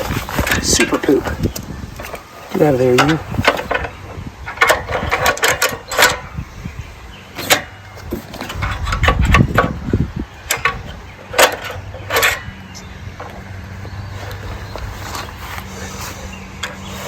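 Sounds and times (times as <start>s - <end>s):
metallic clicks of wrenches and bolts: 0.4s - 6.4s, 7.3s - 13.5s.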